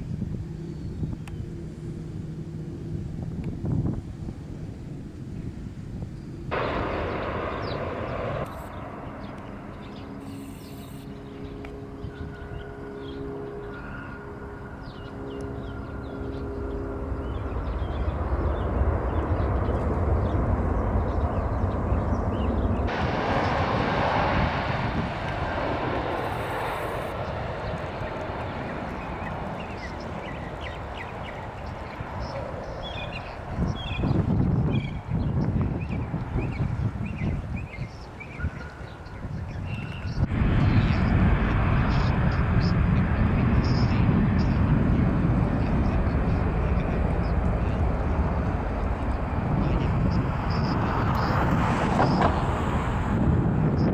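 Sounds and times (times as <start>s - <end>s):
jet airliner engines rumbling: 0.0s - 53.9s.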